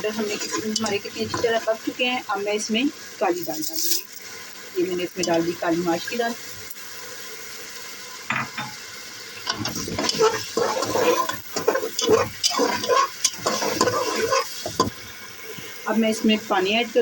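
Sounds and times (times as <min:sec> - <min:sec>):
spoon scraping a pot: 0:00.0 - 0:01.7, 0:09.4 - 0:15.0
food sizzling in a pot: 0:00.0 - 0:17.0.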